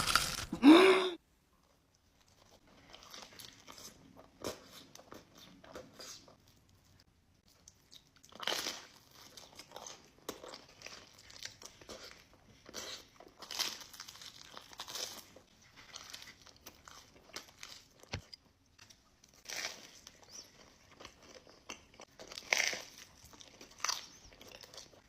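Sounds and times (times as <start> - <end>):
crunchy bites into pizza: 0.0 - 0.6
chewing: 2.2 - 25.0.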